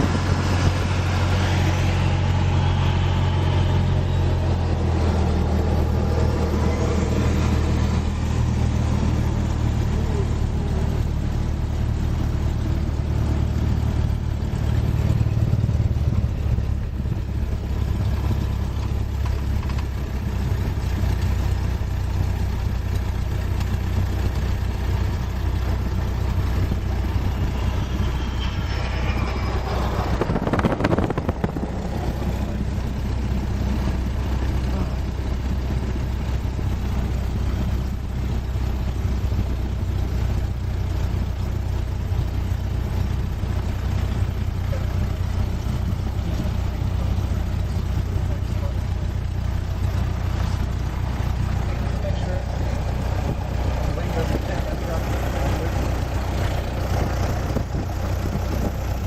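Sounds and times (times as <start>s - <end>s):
airplane engine drone: 0.0s - 21.2s, 21.8s - 36.3s.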